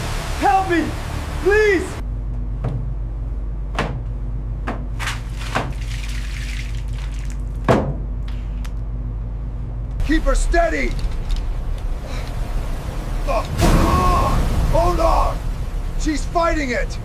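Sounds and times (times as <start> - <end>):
sharp knocks or splashes: 4.7 - 8.1, 13.3 - 16.0
low rumble: 6.8 - 17.0.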